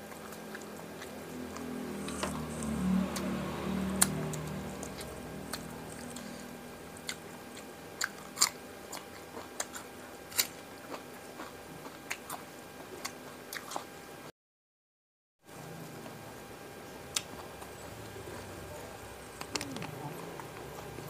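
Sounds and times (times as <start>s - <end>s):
chewing and crisp crunching: 0.0s - 14.0s, 17.1s - 21.0s.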